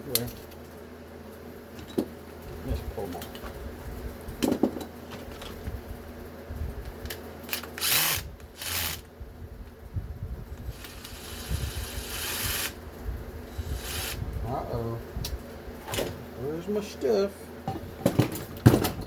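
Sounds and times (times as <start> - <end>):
power drill running: 7.8 - 9.0, 10.7 - 12.8, 13.6 - 14.2.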